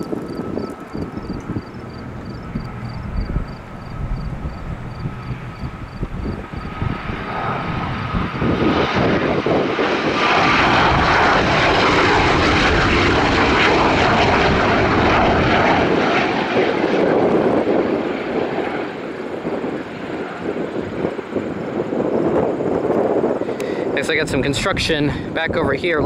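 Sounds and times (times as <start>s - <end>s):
jet engines passing close: 0.0s - 26.0s.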